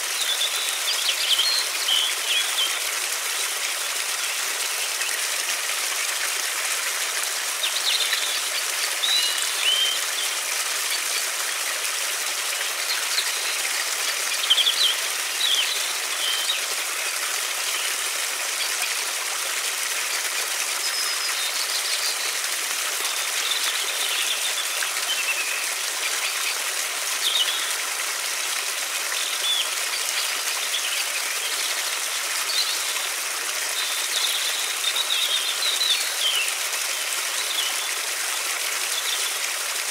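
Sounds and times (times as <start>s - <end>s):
river water flowing: 0.0s - 39.9s
small birds chirping: 7.5s - 11.3s, 12.5s - 17.0s, 33.7s - 38.0s.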